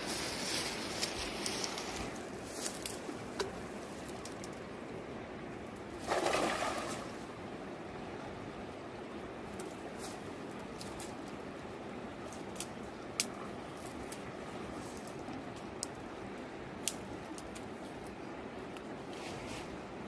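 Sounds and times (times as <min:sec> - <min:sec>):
river water rushing: 0:05.9 - 0:09.0.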